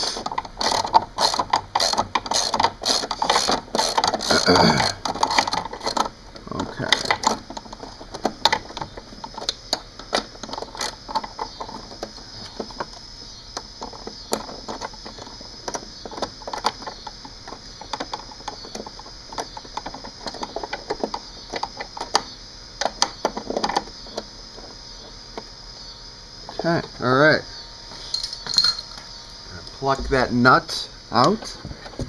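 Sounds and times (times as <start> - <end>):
socket ratchet clicking: 0.0 - 6.1.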